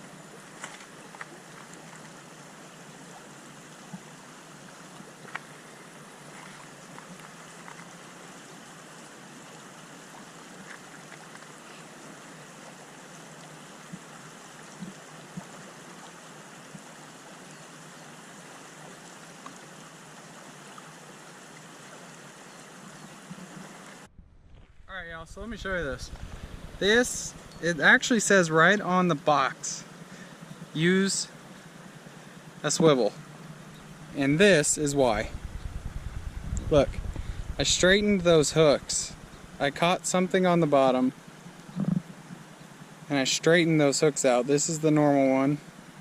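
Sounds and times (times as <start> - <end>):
river water flowing over rocks: 0.0 - 24.1, 26.8 - 35.2.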